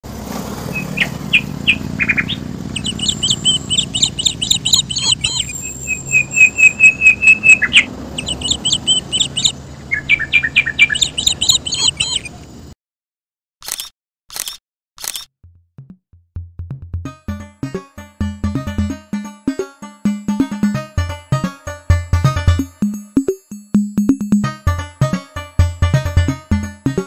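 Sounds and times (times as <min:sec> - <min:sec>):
birds chirping and trilling: 0:00.6 - 0:12.7
loud repeated bird notes: 0:00.7 - 0:12.5.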